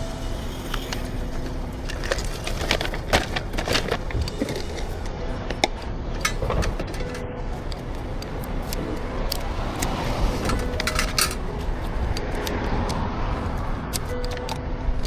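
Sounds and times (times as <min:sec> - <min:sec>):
coffee equipment and cups clicking: 0:00.6 - 0:14.6.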